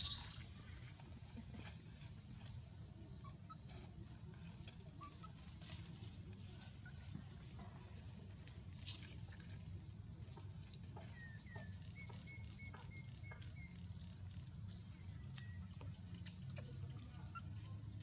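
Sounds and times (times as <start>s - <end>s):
faint short chirps: 0.0s - 0.6s
low outdoor rumble: 0.0s - 18.0s.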